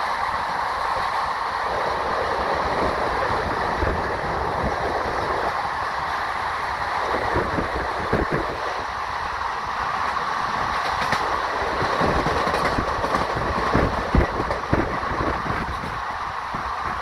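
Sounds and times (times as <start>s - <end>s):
train rumbling: 0.0s - 17.0s
wheels clacking over rail joints: 9.9s - 16.6s.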